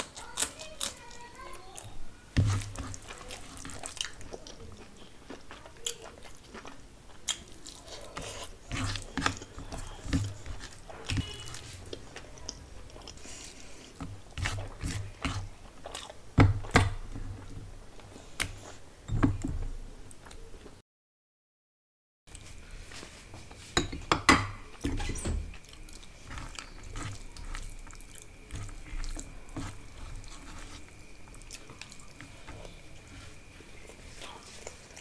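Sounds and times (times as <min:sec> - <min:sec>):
person chewing: 0:00.0 - 0:17.6, 0:25.5 - 0:35.0.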